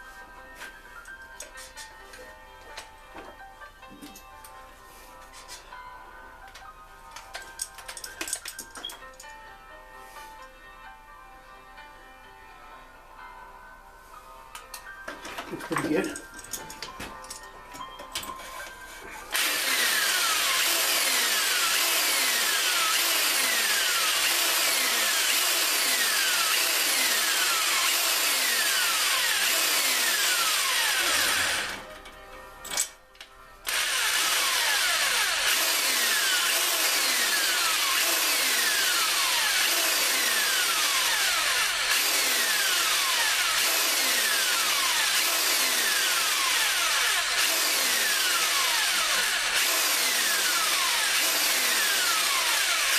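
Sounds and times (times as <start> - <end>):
electric drill spinning a hone: 18.4 - 31.9, 33.6 - 52.9.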